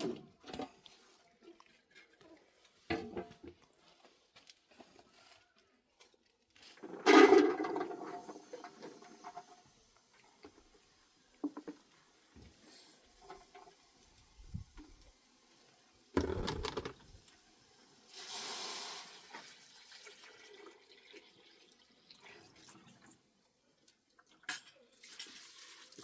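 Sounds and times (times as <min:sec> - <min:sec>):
handling clicks and knocks: 0:16.2 - 0:17.1
water pouring or splashing: 0:18.1 - 0:23.2, 0:24.2 - 0:26.0.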